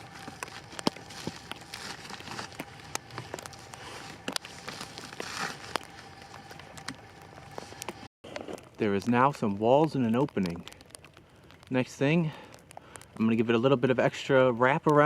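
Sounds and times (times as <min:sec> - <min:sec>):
footsteps crunching in snow: 0:00.0 - 0:08.6
plastic wrap crinkling: 0:00.0 - 0:13.2.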